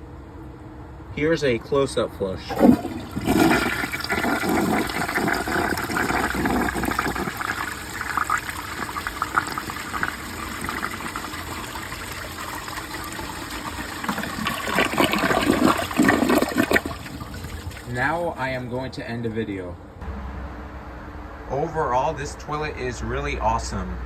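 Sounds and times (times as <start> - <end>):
toilet flushing: 2.4 - 18.6
toilet tank refilling trickle: 2.5 - 18.4.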